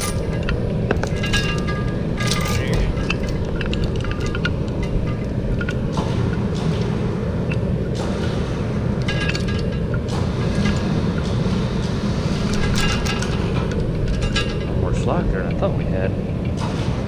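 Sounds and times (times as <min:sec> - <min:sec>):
metallic clinks and knocks: 0:00.0 - 0:08.1, 0:12.5 - 0:14.8
low machine rumble: 0:00.0 - 0:17.0.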